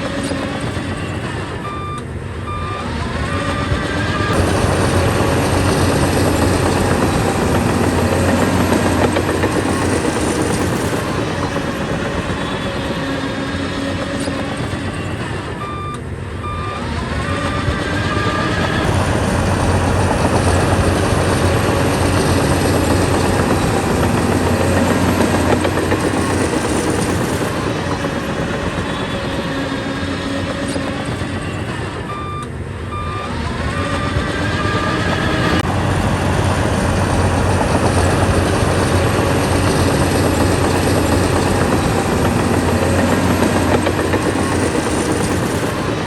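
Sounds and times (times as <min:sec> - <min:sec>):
reversing alarm beeping: 0:00.0 - 0:35.7
diesel engine under load: 0:00.0 - 0:46.0.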